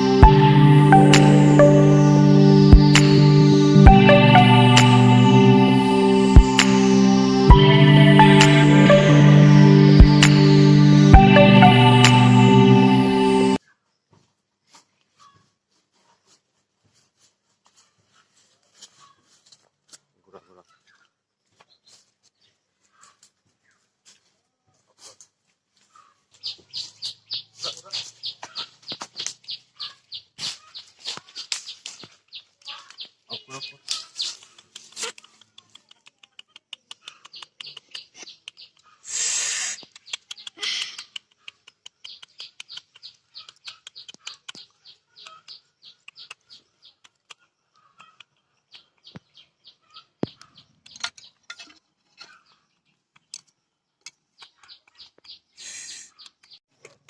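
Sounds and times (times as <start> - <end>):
small birds chirping: 25.9 - 56.6.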